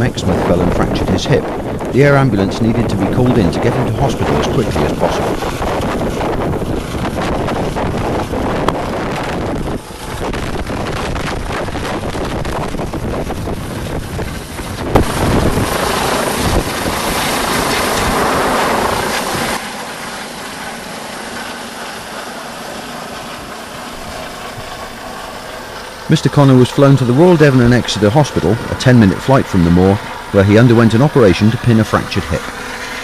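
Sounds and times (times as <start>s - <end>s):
wind noise: 0.0s - 19.7s, 23.3s - 33.0s
helicopter rotors and engine: 0.0s - 33.0s.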